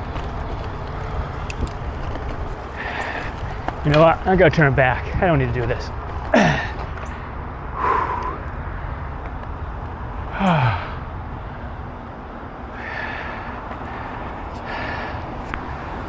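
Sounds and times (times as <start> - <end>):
wind and bicycle riding noise: 0.0 - 16.0
breathy exhales: 2.7 - 4.0, 7.7 - 9.0, 10.3 - 11.1, 12.7 - 15.4
man sighing: 10.3 - 11.0.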